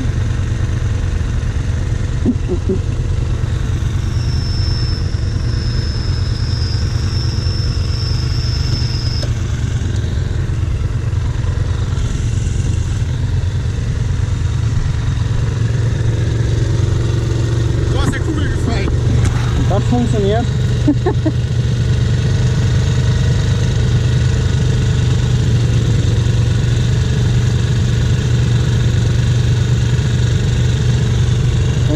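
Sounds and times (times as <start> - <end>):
high steady whine: 0.0 - 20.9
quad engine idling: 0.0 - 31.9.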